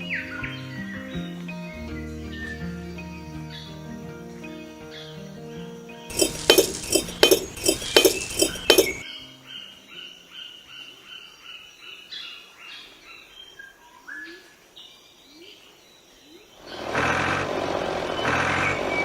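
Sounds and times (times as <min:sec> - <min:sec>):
sharp ringing clinks: 0:06.1 - 0:09.0
bird chirping: 0:06.1 - 0:16.8.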